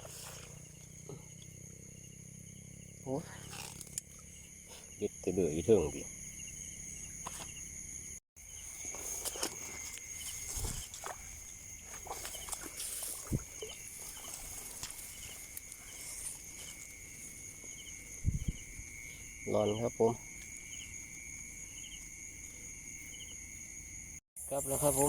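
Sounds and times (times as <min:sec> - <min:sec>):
night insects chirring: 0:00.0 - 0:25.0
short repeated insect chirps: 0:00.0 - 0:25.0
walking through vegetation: 0:08.5 - 0:17.9.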